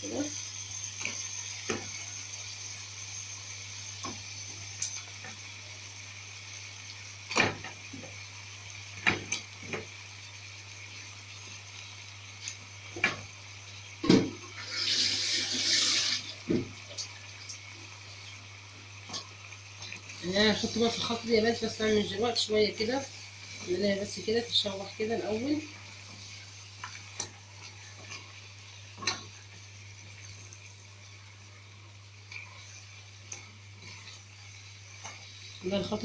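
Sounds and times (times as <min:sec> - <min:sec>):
water from kitchen tap: 0:14.1 - 0:17.7.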